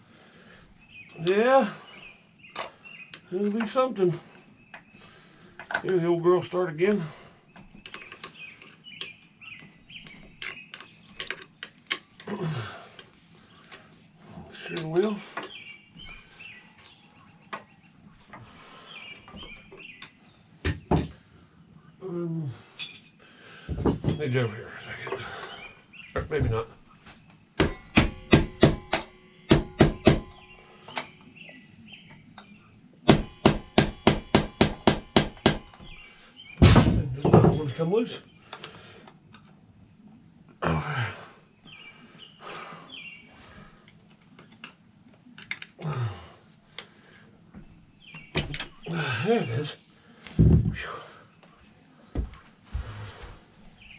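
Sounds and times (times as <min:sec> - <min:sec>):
birds chirping: 0:00.0 - 0:53.9
tools clicking and tapping: 0:07.6 - 0:12.3, 0:27.6 - 0:31.1
hammer blows on metal: 0:27.6 - 0:30.5.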